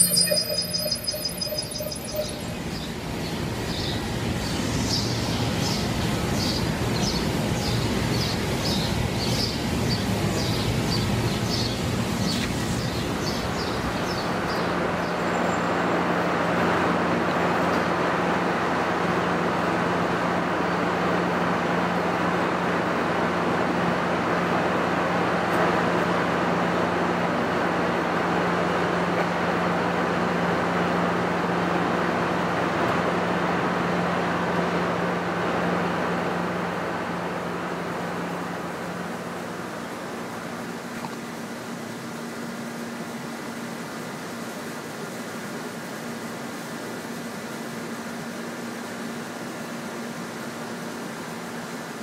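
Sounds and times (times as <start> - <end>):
bird chirping: 0.0 - 3.0
low hum: 0.0 - 3.2.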